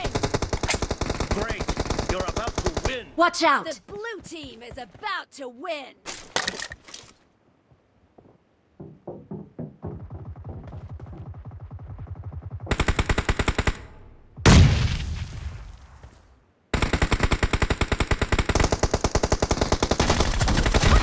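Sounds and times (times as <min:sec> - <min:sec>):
rapid automatic gunfire: 0:00.0 - 0:03.0, 0:10.3 - 0:13.8, 0:16.7 - 0:21.0
loud explosion: 0:14.4 - 0:15.7.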